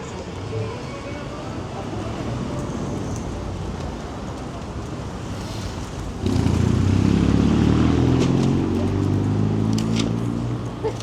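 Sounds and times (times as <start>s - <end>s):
street traffic rumbling: 0.0s - 11.0s
vehicle engine droning: 5.3s - 10.7s.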